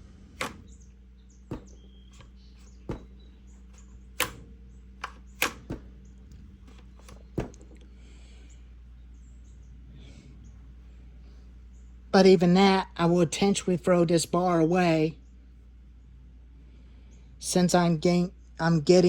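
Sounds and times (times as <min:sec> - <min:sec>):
faint low hum: 0:00.0 - 0:19.0
sharp clicks and knocks: 0:00.4 - 0:00.8, 0:01.5 - 0:07.8.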